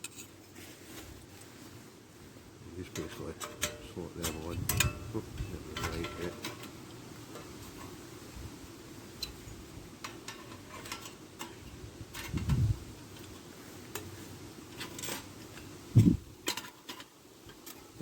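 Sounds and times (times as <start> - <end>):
metal plates clicking together: 2.9 - 5.1, 5.7 - 6.8, 10.0 - 12.6.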